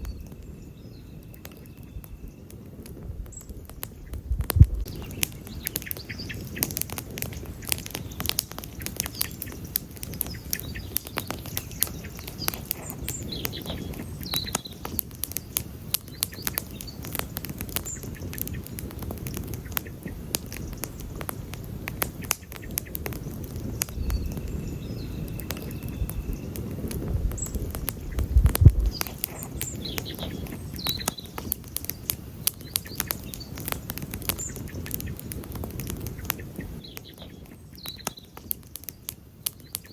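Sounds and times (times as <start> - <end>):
faint bird chirps: 0.0 - 2.7, 3.3 - 18.7, 23.6 - 33.6, 36.1 - 39.9
campfire crackling: 0.0 - 39.9.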